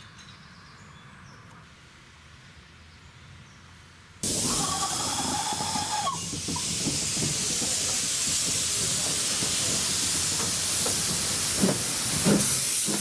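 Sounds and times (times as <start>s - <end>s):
hiss of escaping steam: 4.2s - 13.0s.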